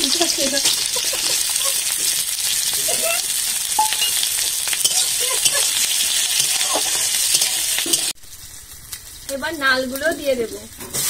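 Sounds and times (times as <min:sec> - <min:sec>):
vegetables sizzling in oil: 0:00.0 - 0:11.0
metal spatula stirring: 0:03.8 - 0:08.2.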